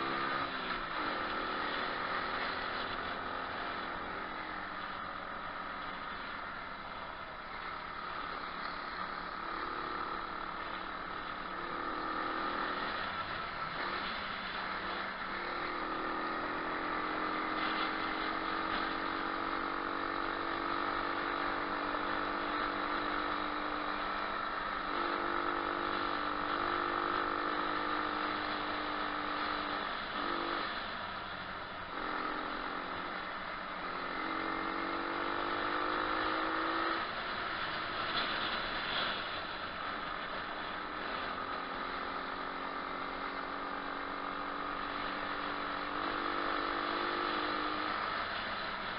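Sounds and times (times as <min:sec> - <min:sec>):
motorbike engine revving: 0:08.7 - 0:30.9, 0:31.9 - 0:48.9.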